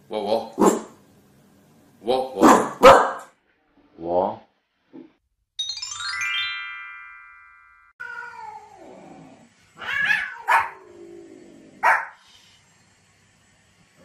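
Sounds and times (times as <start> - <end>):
dog barks: 0.6 - 1.0, 2.4 - 3.3, 10.0 - 10.8, 11.8 - 12.2
ringing chime tone: 5.6 - 8.0.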